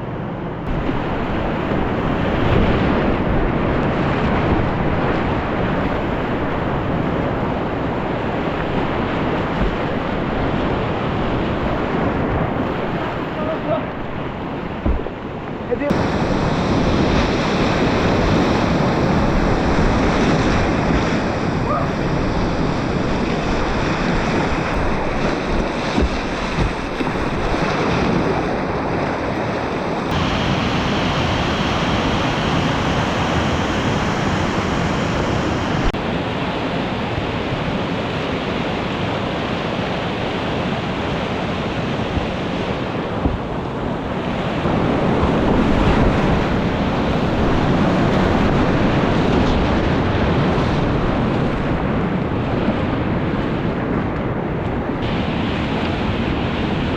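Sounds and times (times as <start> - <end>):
wind on microphone: 0.0 - 56.9
whitewater rapids rushing: 0.6 - 51.8, 55.0 - 56.9.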